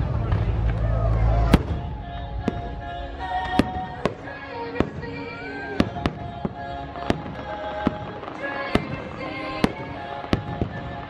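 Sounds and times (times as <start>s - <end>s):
fireworks bangs: 0.0s - 11.0s
music soundtrack: 0.0s - 11.0s.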